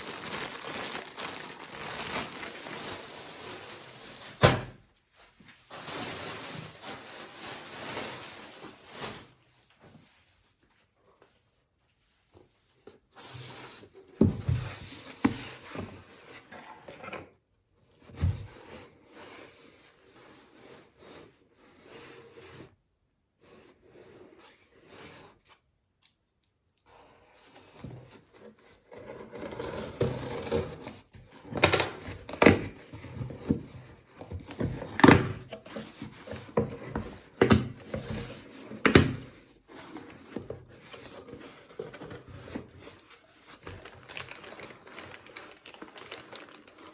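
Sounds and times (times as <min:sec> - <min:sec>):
packaging rustling and rubbing: 0:00.0 - 0:04.4, 0:05.4 - 0:09.5, 0:29.5 - 0:46.9.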